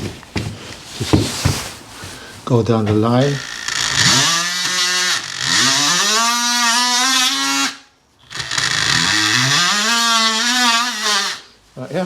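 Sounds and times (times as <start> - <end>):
power tool drilling into block wall: 3.3 - 11.5.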